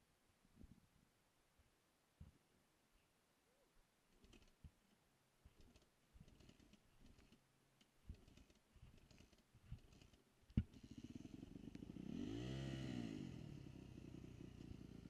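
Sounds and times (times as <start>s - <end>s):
faint clicks and knocks: 4.1s - 10.8s.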